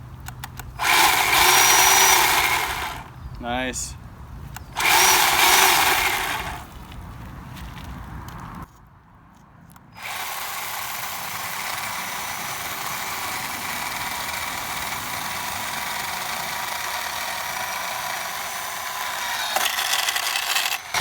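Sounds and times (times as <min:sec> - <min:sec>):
electric chainsaw motor whining: 0:00.8 - 0:03.5, 0:04.6 - 0:06.8, 0:10.0 - 0:21.0.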